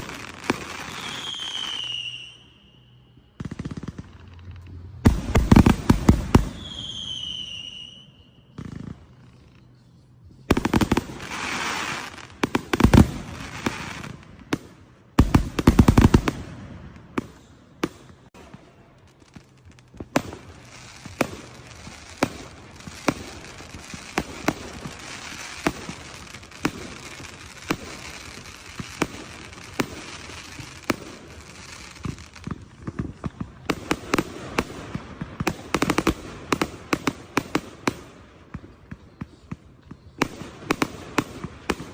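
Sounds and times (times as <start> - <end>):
firework bangs: 0.0 - 9.8, 10.5 - 41.9
firework whistle: 0.0 - 14.3, 20.0 - 32.6.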